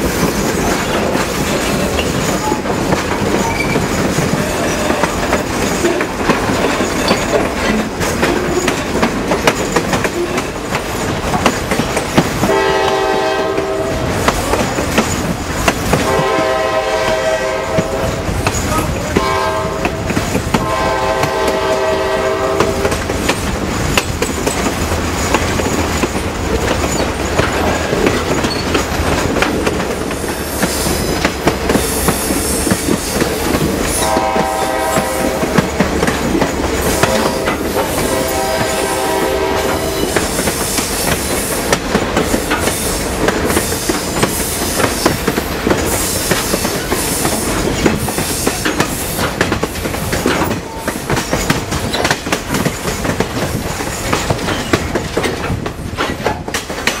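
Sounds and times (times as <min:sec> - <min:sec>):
train wheels clacking over rail joints: 0:00.0 - 0:57.0
locomotive horn blasts: 0:12.4 - 0:14.2, 0:16.0 - 0:18.3, 0:19.1 - 0:23.0, 0:33.9 - 0:35.6, 0:36.8 - 0:40.2.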